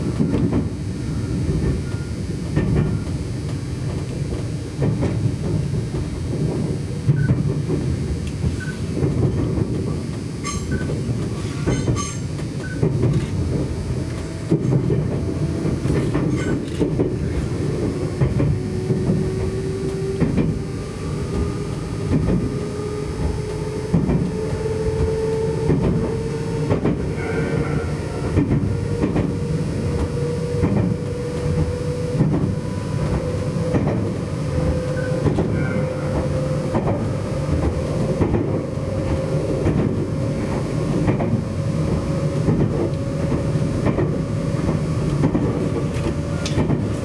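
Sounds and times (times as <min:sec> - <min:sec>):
train rumble from inside: 0:00.0 - 0:47.0
rising whine: 0:17.4 - 0:47.0.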